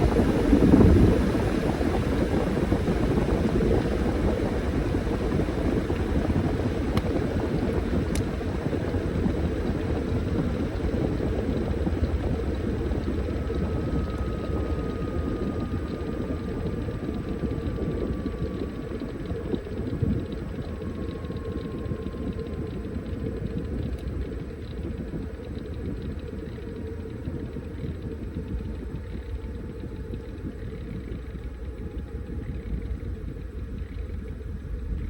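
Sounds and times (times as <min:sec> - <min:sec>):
washing machine drone: 0:00.0 - 0:35.0.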